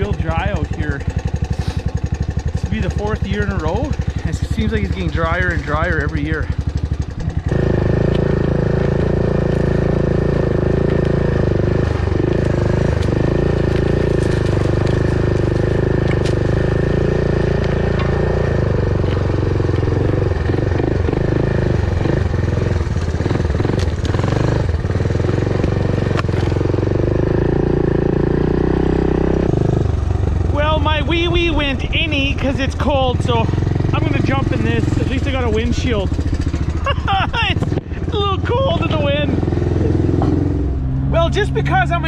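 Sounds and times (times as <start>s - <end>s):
vehicle engine running: 0.0s - 42.0s
rattles and knocks: 17.3s - 21.0s.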